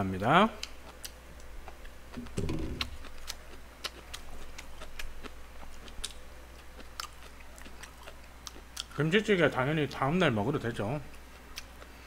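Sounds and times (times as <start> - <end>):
mouth clicks and smacks: 0.6 - 6.2
short low hum: 2.2 - 3.2.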